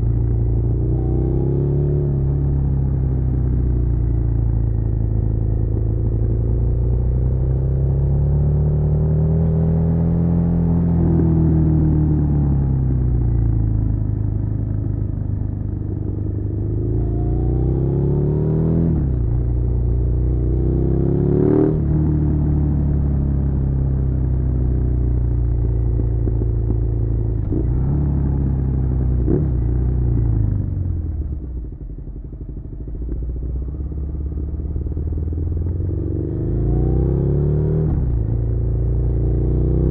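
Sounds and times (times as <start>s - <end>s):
motorcycle engine revving: 15.7s - 23.9s, 25.4s - 39.9s.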